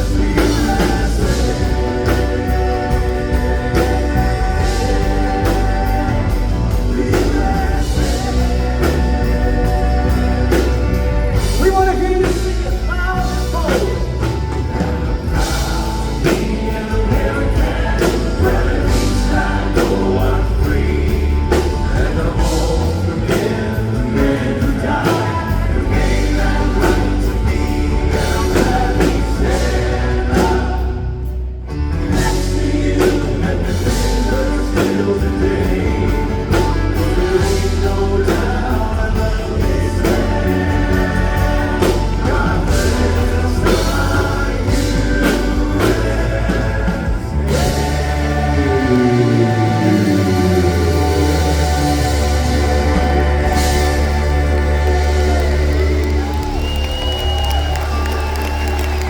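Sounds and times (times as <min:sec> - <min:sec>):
live band with drums: 0:00.0 - 0:59.0
male quartet singing in harmony: 0:00.0 - 0:59.0.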